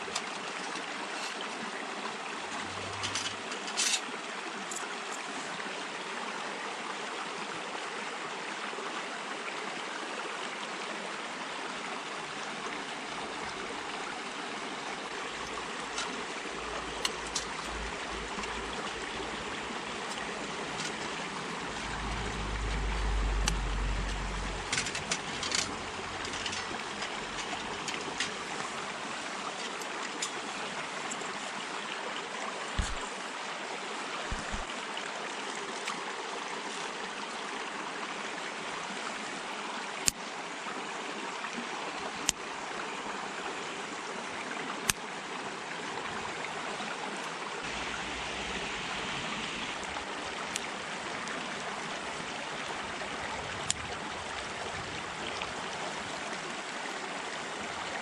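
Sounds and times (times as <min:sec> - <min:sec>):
twig fire crackling: 0:32.8 - 0:33.0, 0:34.3 - 0:34.7.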